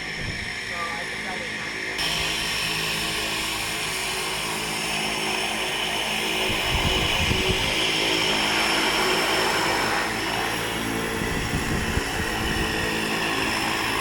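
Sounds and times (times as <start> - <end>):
wind buffeting microphone: 0.0 - 0.8, 6.1 - 14.0
turboprop engine whine: 0.0 - 14.0.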